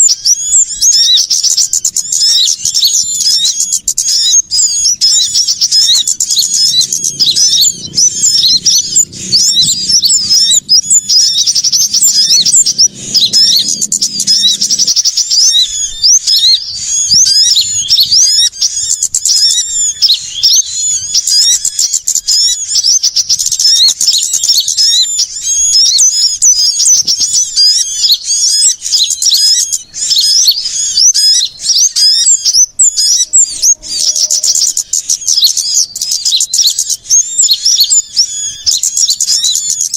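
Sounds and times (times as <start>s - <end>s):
songbirds chirping and trilling: 0.0s - 39.9s
faint low rumble: 4.7s - 18.8s.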